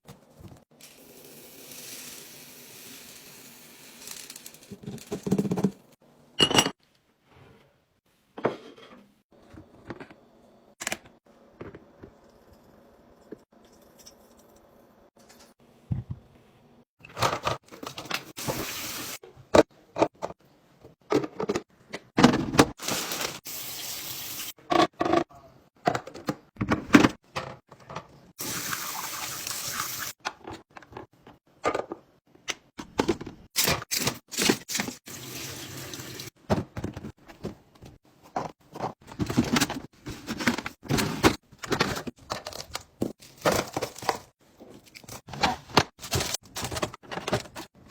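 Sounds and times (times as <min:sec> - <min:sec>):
water pouring: 0:28.4 - 0:30.1, 0:34.9 - 0:36.3.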